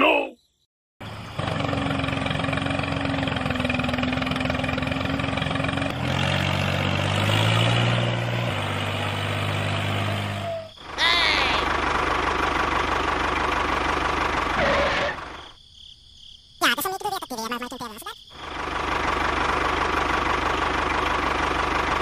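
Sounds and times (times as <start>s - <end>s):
small vehicle motor humming: 1.0s - 15.4s.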